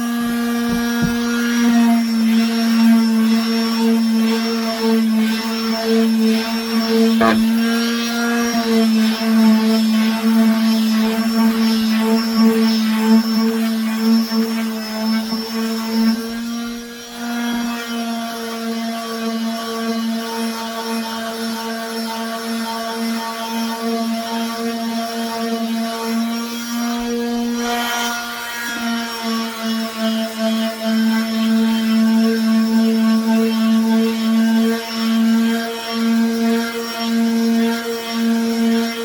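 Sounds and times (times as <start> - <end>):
power tool motor humming: 0.0 - 17.7
power sander running on wood: 0.0 - 20.2, 21.6 - 39.0.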